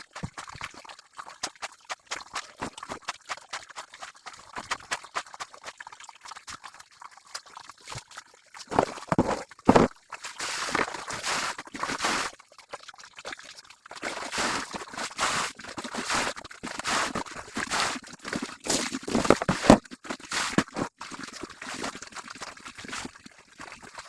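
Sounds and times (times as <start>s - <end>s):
water splashing and pouring: 0.0s - 24.0s
scattered knocks: 8.7s - 9.9s.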